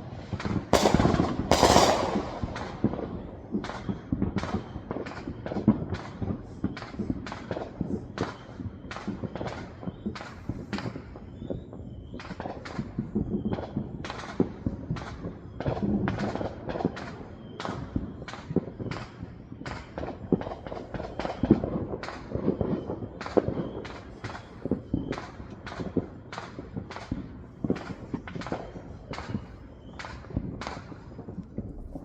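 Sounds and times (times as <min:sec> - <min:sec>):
firecrackers cracking and popping: 0:00.0 - 0:32.0
low background rumble: 0:31.0 - 0:32.0.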